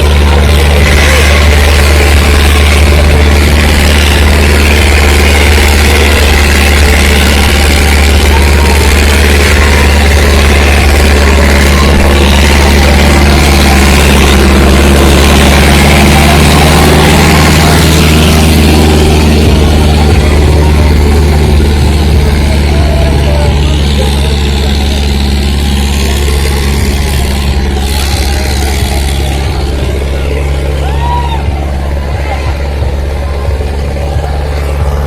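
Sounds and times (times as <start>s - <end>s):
loud tractor diesel engine: 0.0s - 35.0s.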